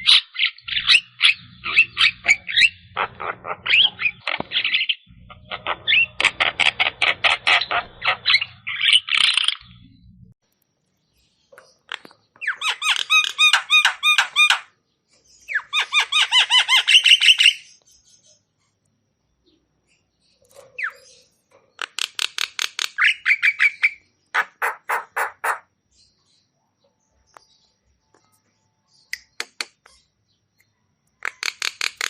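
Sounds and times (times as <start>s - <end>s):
low hum: 9.6s - 10.4s.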